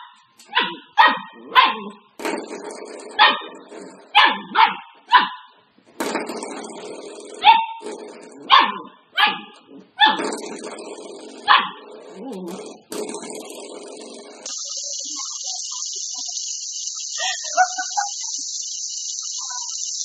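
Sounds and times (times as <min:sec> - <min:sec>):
dog barking: 0:00.0 - 0:02.0, 0:03.2 - 0:05.6, 0:07.4 - 0:07.8, 0:08.5 - 0:10.4, 0:11.5 - 0:11.9
background hiss: 0:12.5 - 0:20.0.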